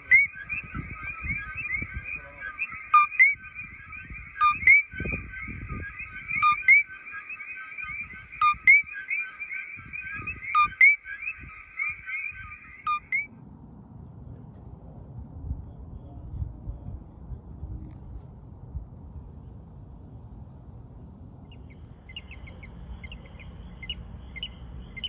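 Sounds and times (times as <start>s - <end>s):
frog chorus chirping: 0.0s - 13.3s, 21.4s - 25.0s
frog two-note call: 0.0s - 13.3s.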